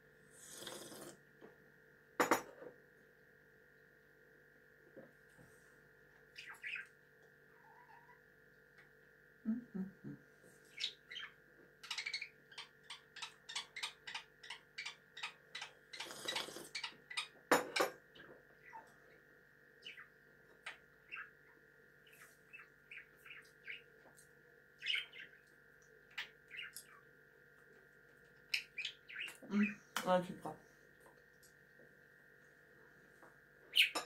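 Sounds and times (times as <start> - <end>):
faint steady hum: 0.0 - 34.0
pet bird chirping: 6.3 - 7.0, 7.6 - 8.2, 10.7 - 17.4, 18.6 - 19.0, 19.8 - 24.0, 24.7 - 25.5, 26.1 - 27.1, 28.4 - 29.8, 33.7 - 34.0.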